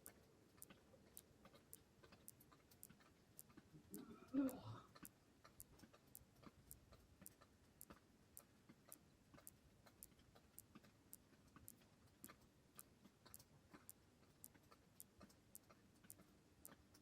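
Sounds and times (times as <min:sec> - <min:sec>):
faint even ticking: 0:00.0 - 0:17.0.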